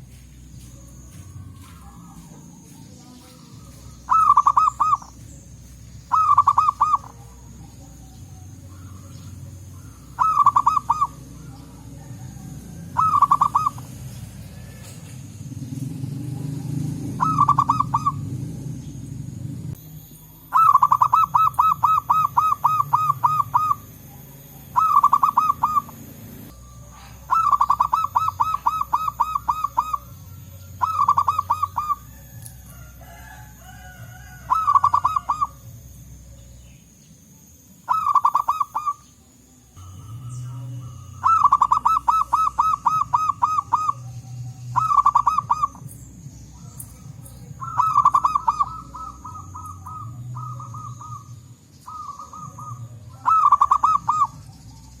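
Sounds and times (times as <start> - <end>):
dove cooing in staccato bursts: 3.6 - 18.6, 20.4 - 32.3, 33.0 - 36.0, 37.9 - 39.0, 40.8 - 45.9, 47.5 - 54.4.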